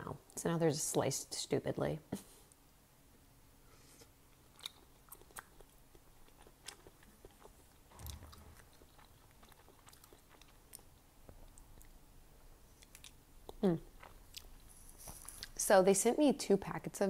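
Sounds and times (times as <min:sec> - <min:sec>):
chewing food: 0:04.3 - 0:15.6.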